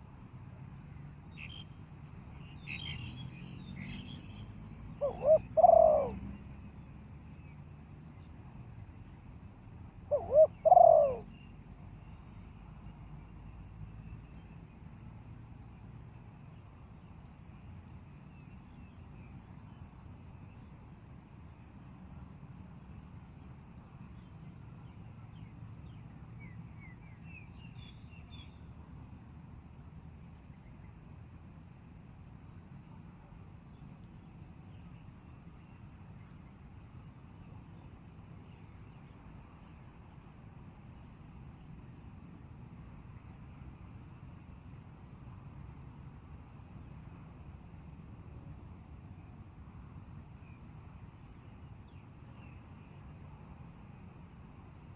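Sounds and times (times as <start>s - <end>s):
dove cooing: 5.0s - 6.2s, 10.1s - 11.3s.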